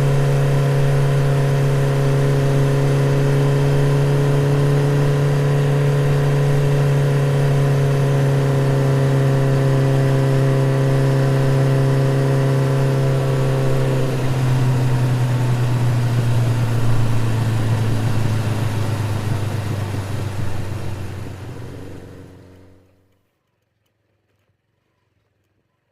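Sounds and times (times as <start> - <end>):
motorcycle engine drone: 0.0 - 23.0.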